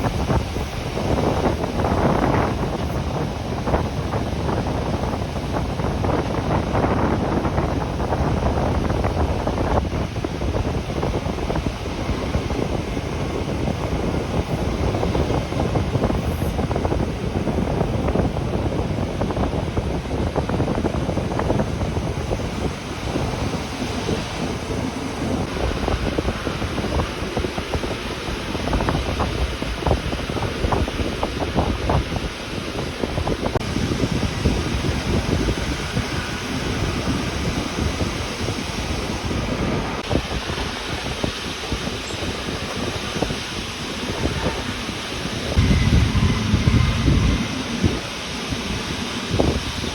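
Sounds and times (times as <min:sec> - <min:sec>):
train rattles and clicks: 0:00.0 - 0:49.9
train rumbling: 0:00.0 - 0:49.9.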